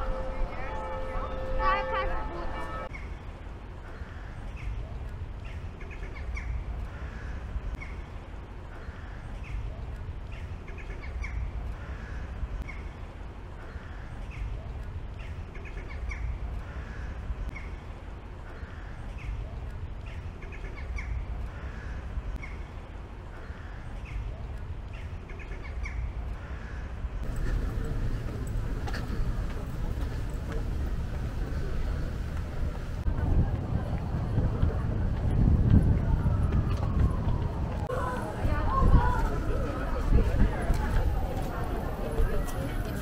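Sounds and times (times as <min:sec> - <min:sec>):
steady low rumble: 0:26.0 - 0:43.0.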